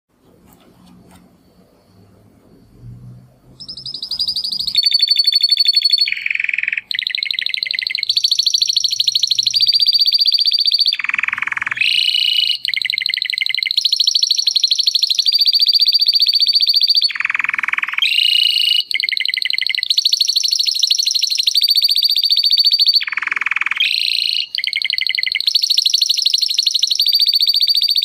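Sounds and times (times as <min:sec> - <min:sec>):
faint low background noise: 0:00.1 - 0:16.6
canary singing in rapid trills: 0:03.4 - 0:28.0.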